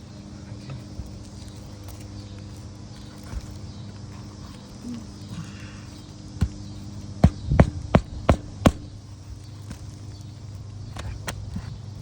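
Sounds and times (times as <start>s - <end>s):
steady low hum: 0.0s - 12.0s
hammer striking roofing nails: 7.2s - 9.0s.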